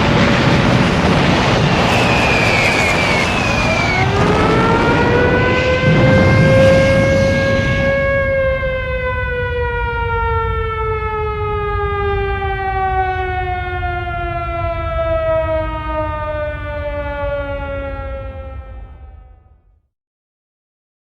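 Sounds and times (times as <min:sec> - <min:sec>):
low rumble: 0:00.0 - 0:09.6
air-raid siren winding down: 0:00.0 - 0:19.8.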